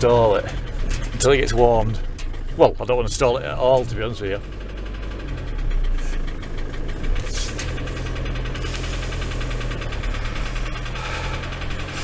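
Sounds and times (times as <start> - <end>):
fast ticking engine knock: 0.0 - 12.0
van engine idling: 0.0 - 12.0.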